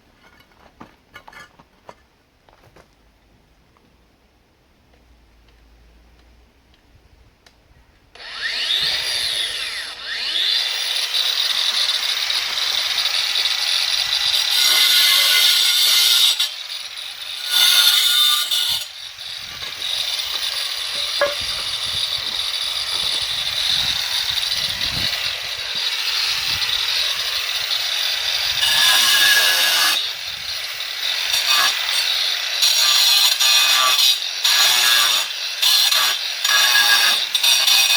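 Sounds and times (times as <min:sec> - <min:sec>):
angle grinder cutting masonry: 0:08.2 - 0:37.9.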